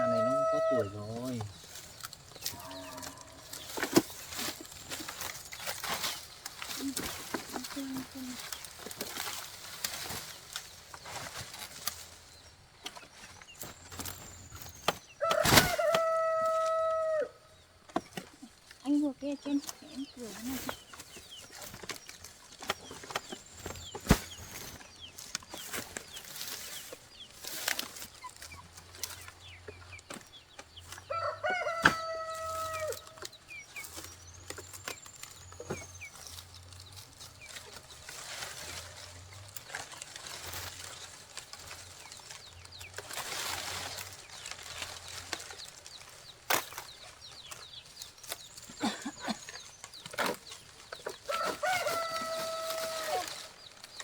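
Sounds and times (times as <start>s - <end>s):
rooster crowing: 0.0s - 1.0s, 15.2s - 17.4s, 31.1s - 33.1s, 51.3s - 53.4s
chickens calling: 0.0s - 54.0s.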